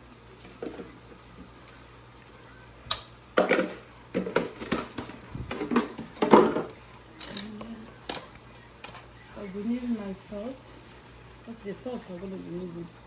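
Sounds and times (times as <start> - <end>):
sharp click: 2.9 - 3.1
kitchen containers knocking and rattling: 3.4 - 6.8.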